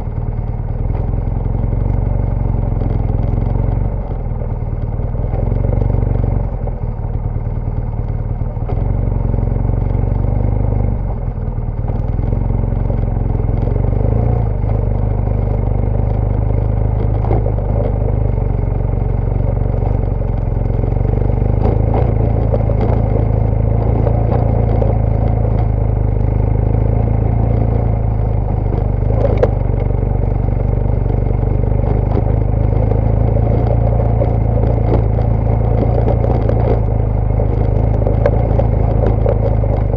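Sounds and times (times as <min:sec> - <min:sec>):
motorcycle engine running: 0:00.0 - 0:39.9
motorcycle clattering over rough ground: 0:11.6 - 0:39.9.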